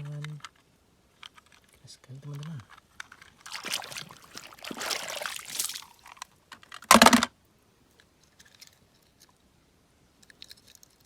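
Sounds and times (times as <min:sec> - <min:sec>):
water splashing and trickling: 0:03.4 - 0:06.2.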